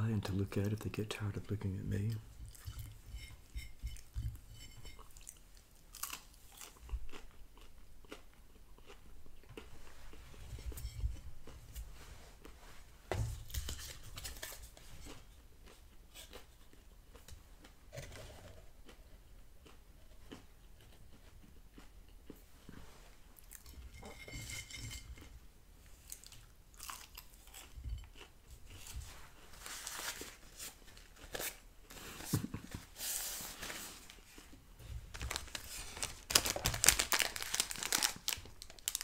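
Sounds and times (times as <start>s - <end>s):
chewing and crunching fried chicken: 2.0s - 10.3s, 13.8s - 24.0s, 25.9s - 29.0s, 35.2s - 39.0s.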